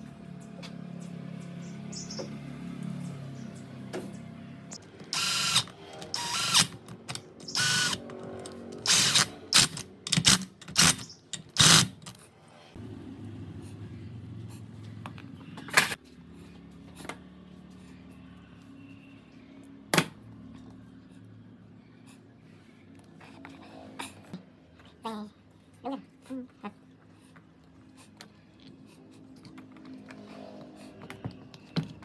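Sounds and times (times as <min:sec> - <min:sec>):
sharp clicks: 0:04.8 - 0:12.2.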